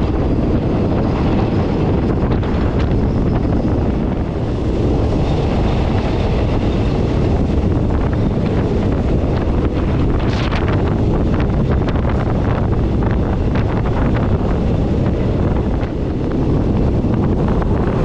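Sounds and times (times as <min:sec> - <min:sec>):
moving train rumble: 0:00.0 - 0:18.0
wind buffeting microphone: 0:00.0 - 0:18.0.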